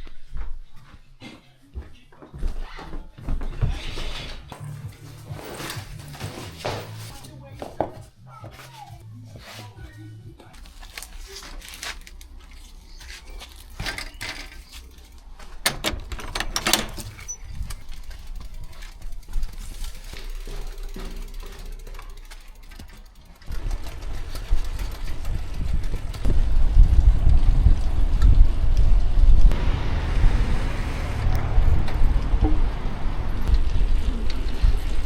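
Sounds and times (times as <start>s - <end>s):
low steady rumble: 23.6s - 35.0s.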